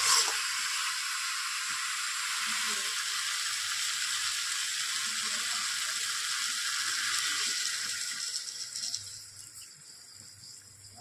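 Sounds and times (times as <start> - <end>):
water pouring into a pan: 0.0 - 9.6
food sizzling in a pan: 0.0 - 11.0.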